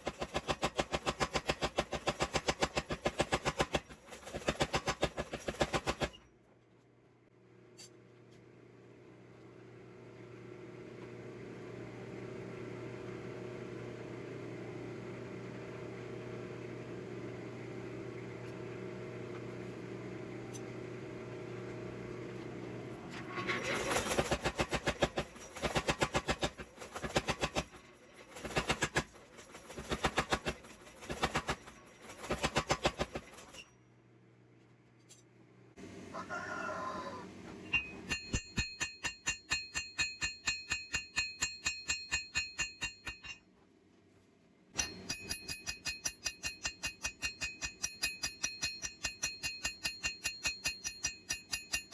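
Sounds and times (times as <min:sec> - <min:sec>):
mechanical hum: 0:06.1 - 0:25.7, 0:33.4 - 0:38.4
hammer striking iron on anvil: 0:37.7 - 0:43.4, 0:44.8 - 0:51.9.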